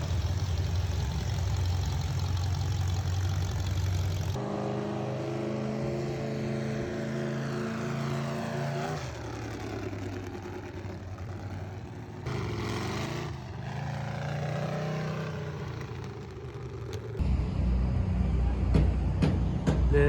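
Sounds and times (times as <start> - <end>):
vehicle engine running: 0.0 - 20.0
loud low rumble: 17.2 - 20.0.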